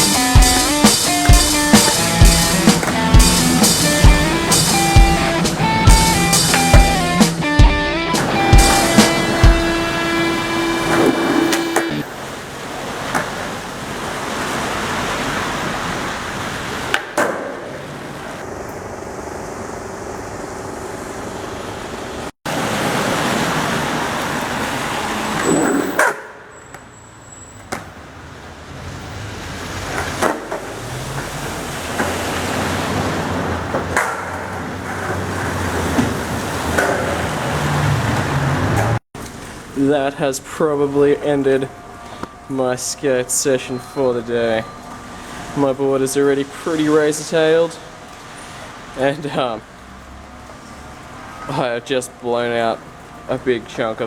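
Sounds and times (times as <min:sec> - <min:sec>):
skateboard clacking on ground: 0:00.0 - 0:07.1, 0:08.2 - 0:12.1, 0:12.9 - 0:13.6, 0:16.8 - 0:19.6, 0:25.3 - 0:26.8, 0:29.9 - 0:31.3, 0:33.7 - 0:37.3
skateboard wheels rolling on pavement: 0:00.0 - 0:42.2.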